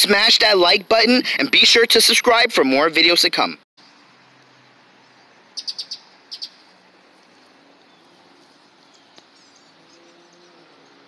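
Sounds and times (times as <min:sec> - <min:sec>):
small bird chirping: 0:03.8 - 0:11.0.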